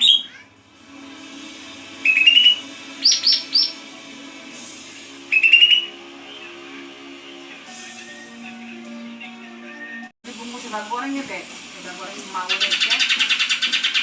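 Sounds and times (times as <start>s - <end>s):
faint background music: 0.0s - 14.0s
bird chirping: 2.0s - 3.8s, 5.3s - 6.6s, 12.5s - 14.0s.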